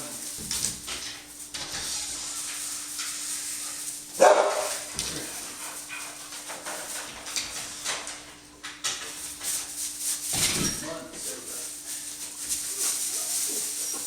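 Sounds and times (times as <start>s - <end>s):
dogs barking: 4.1s - 7.1s.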